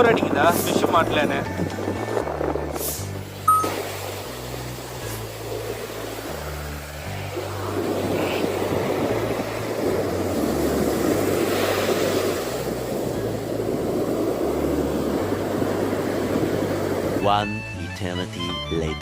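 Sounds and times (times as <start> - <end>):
surf washing: 0.0 - 17.2
strong wind on microphone: 0.0 - 17.6
background music bass line: 17.2 - 19.0.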